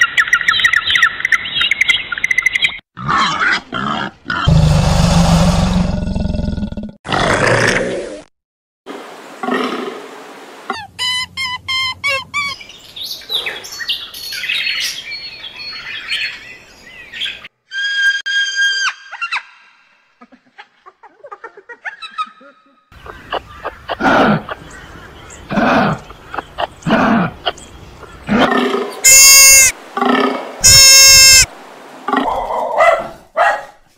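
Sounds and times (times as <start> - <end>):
bird calls and chirps: 0.0 - 2.8, 11.0 - 17.5, 21.9 - 29.7.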